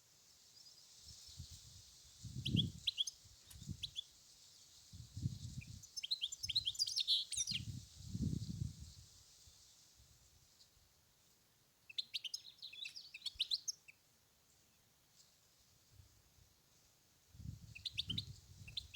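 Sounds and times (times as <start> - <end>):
bird twittering song: 2.4 - 4.1, 5.5 - 7.8, 11.9 - 14.0, 17.6 - 18.9.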